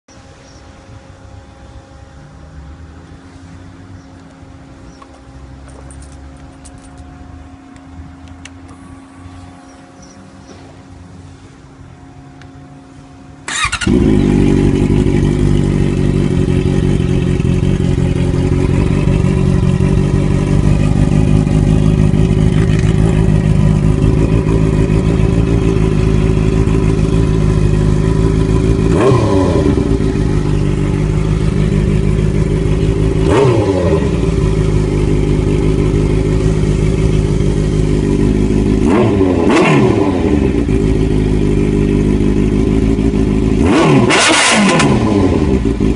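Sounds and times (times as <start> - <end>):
engine throttle blips: 0.1 - 45.9
motorcycle engine idling: 11.8 - 45.9.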